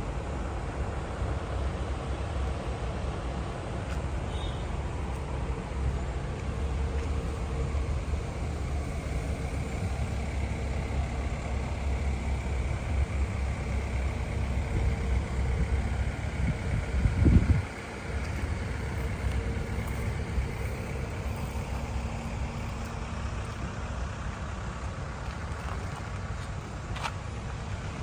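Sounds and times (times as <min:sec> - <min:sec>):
motor running with low rumble: 0:04.7 - 0:26.0.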